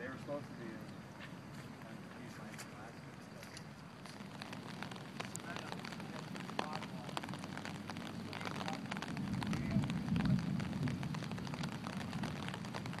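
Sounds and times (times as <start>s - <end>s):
rain pattering: 0.0s - 13.0s
low rumble: 4.4s - 13.0s.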